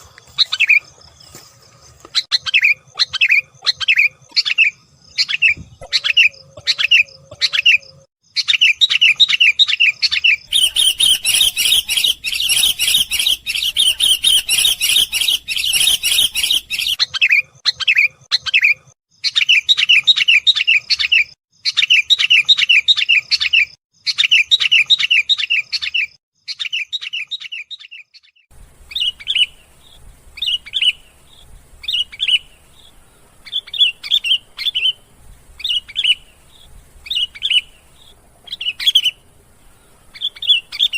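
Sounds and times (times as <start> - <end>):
bird chirping in fast runs: 2.2 - 21.1.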